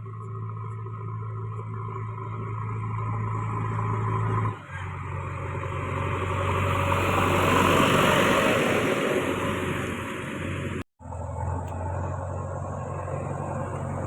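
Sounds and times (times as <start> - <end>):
diesel machinery engine humming: 0.0 - 14.0
rushing noise: 5.7 - 10.8.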